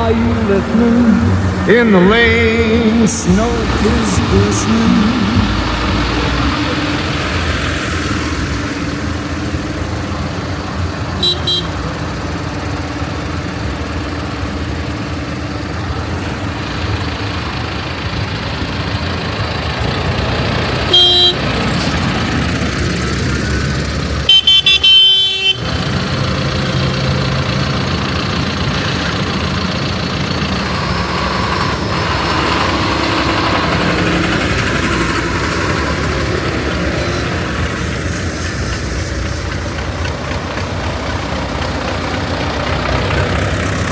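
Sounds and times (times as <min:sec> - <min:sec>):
tractor engines running: 0:00.0 - 0:43.9
horn honks: 0:11.2 - 0:12.2, 0:20.8 - 0:22.0, 0:24.2 - 0:25.8.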